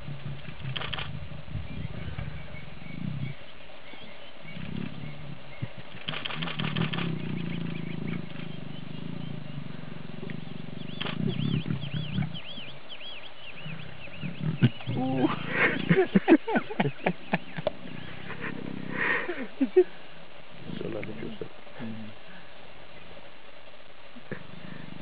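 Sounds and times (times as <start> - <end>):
lions growling low: 0.0 - 3.4, 4.4 - 19.8, 24.3 - 25.0
birds chirping: 0.0 - 25.0.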